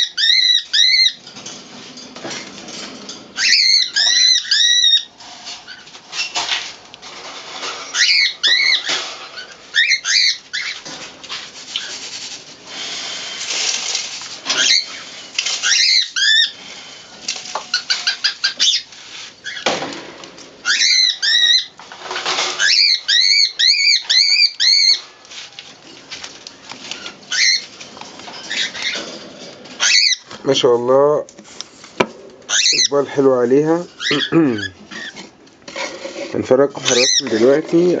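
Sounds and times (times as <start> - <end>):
squeaky pigeon calls: 0.0 - 1.2, 3.3 - 6.4, 7.6 - 10.9, 14.4 - 16.6, 17.6 - 19.8, 20.6 - 25.2, 26.9 - 29.2, 29.8 - 30.5, 32.5 - 35.3, 36.8 - 38.0.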